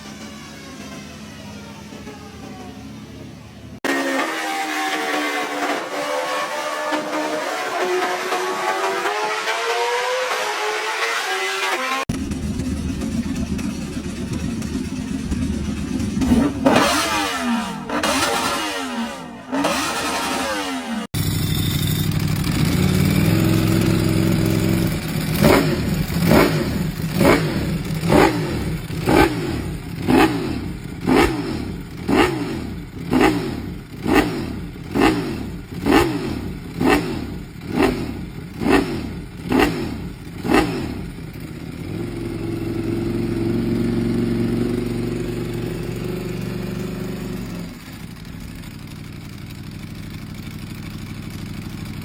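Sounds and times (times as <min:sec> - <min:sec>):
motorcycle engine revving: 0:00.0 - 0:52.0
motorcycle engine idling: 0:12.1 - 0:52.0.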